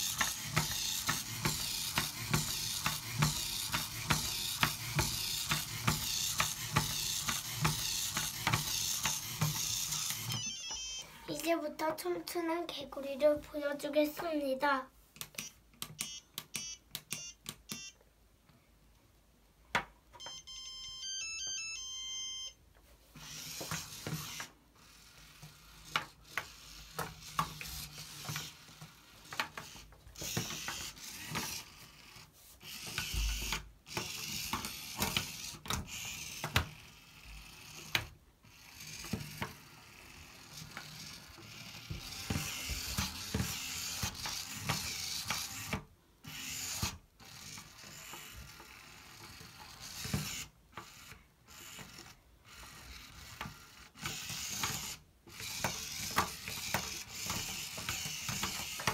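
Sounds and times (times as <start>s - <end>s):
electronic beep tune: 10.4s - 11.1s, 20.2s - 22.6s.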